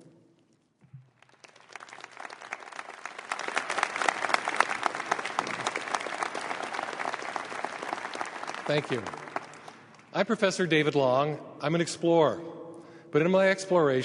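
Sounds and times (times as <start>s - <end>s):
audience applauding: 1.1s - 10.1s.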